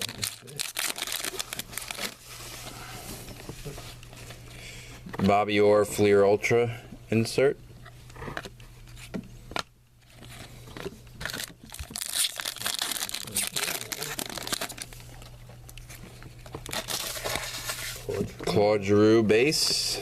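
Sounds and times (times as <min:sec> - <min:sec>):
foil wrapper tearing and crinkling: 0:00.0 - 0:02.2, 0:11.2 - 0:15.0, 0:16.6 - 0:18.0.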